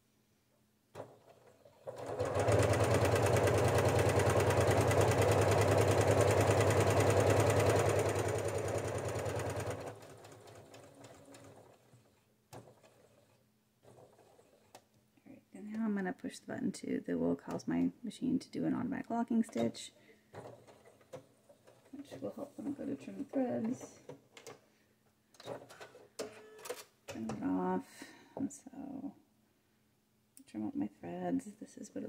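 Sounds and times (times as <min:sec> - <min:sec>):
sewing machine stitching: 0:01.0 - 0:14.9, 0:20.3 - 0:22.3.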